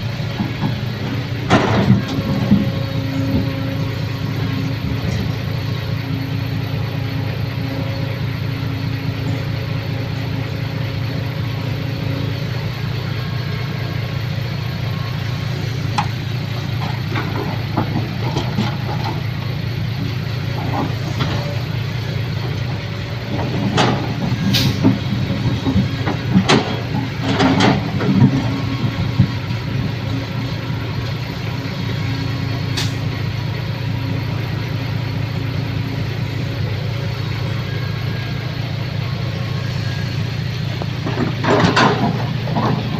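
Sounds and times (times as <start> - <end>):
vehicle engine idling: 0.0 - 42.9
knocks and clatters: 41.0 - 42.9.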